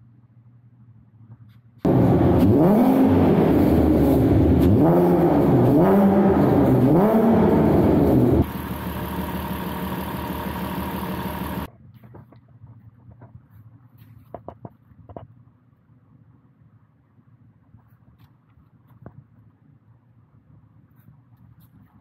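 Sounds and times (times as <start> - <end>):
car engine revving and idling: 1.8 - 11.7.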